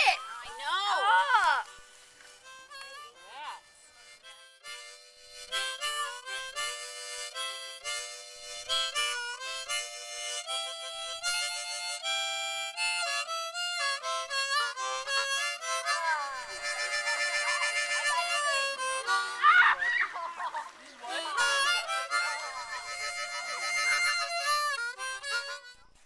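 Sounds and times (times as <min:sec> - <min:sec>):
lively harmonica melody: 0:00.0 - 0:26.0.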